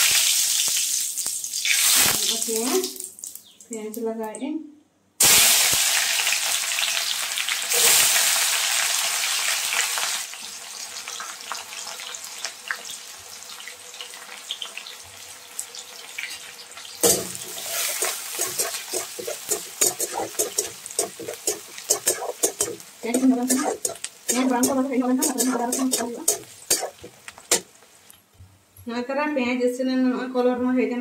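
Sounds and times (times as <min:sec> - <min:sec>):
onions sizzling in hot oil: 0:00.0 - 0:03.4, 0:05.2 - 0:28.1
spatula scraping a wok: 0:17.0 - 0:27.7.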